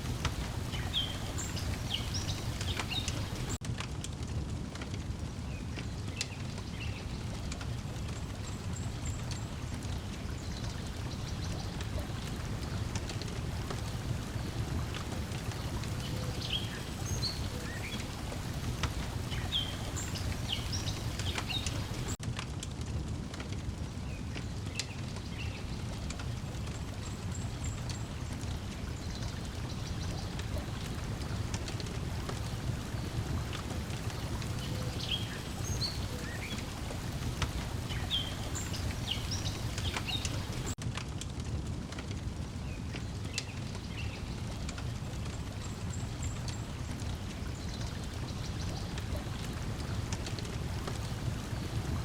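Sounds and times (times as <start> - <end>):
songbirds chirping: 0.0 - 3.6, 5.2 - 22.2, 23.9 - 40.8, 42.6 - 52.0
water lapping: 0.0 - 3.6, 8.4 - 22.2, 26.3 - 40.8, 44.4 - 52.0
wood fire crackling: 0.0 - 52.0.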